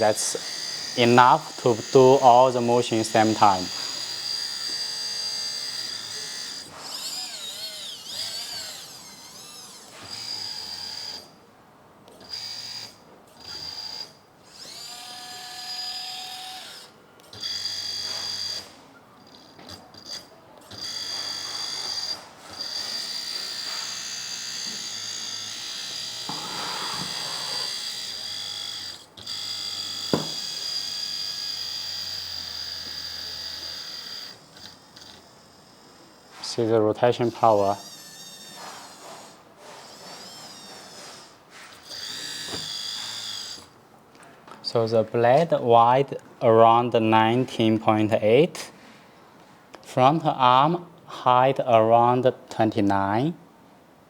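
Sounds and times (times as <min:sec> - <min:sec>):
hydraulic pump whining: 0:00.0 - 0:11.4, 0:12.1 - 0:43.8.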